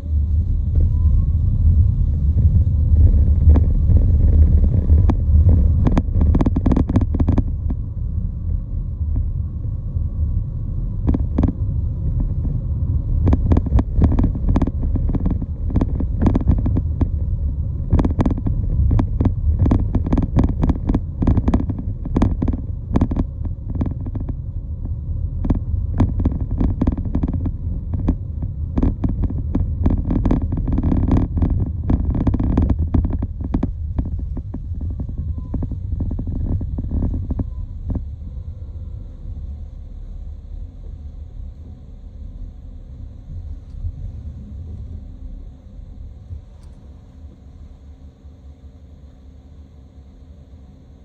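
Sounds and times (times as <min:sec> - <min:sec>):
loud low rumble: 0:00.0 - 0:48.1
sharp clicks and knocks: 0:13.2 - 0:24.4, 0:25.4 - 0:38.0.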